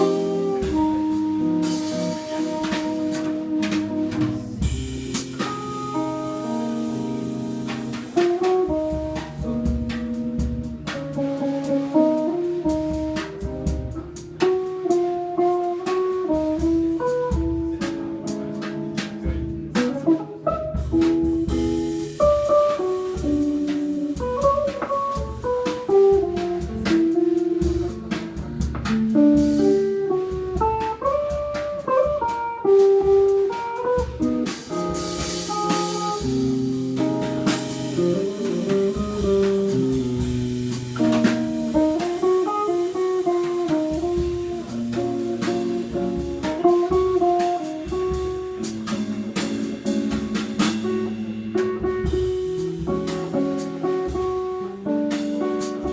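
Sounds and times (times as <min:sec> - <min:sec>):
tenor saxophone melody: 0:00.0 - 0:04.7
cymbals: 0:00.0 - 0:55.9
drums: 0:00.0 - 0:55.9
guitar: 0:00.0 - 0:55.9.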